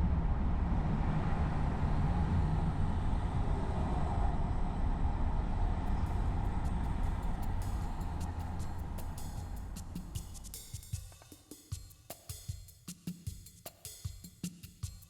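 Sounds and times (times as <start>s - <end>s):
car driving rumble: 0.0s - 10.6s.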